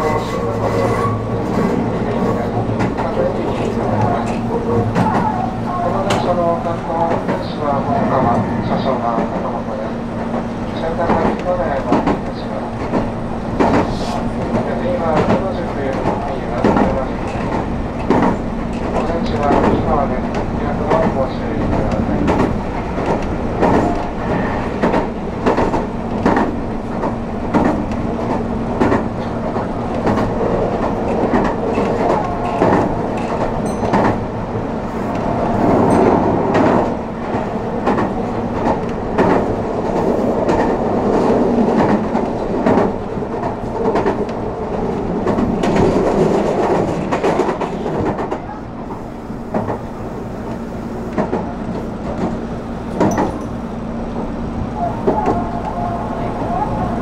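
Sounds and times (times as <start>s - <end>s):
electric train hum: 0.0s - 57.0s
train wheels clicking over joints: 10.2s - 53.6s.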